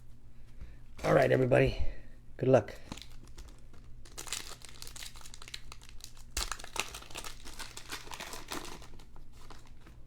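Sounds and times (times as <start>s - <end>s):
wrapper crinkling: 2.9s - 10.0s
wrapper ripping: 2.9s - 10.0s.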